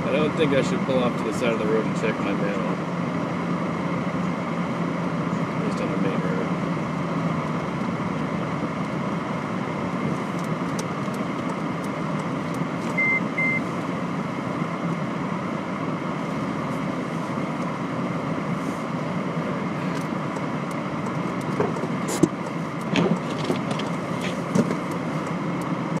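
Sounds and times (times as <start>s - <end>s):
car cabin road and engine noise: 0.0s - 26.0s
short high beeps: 13.0s - 13.6s.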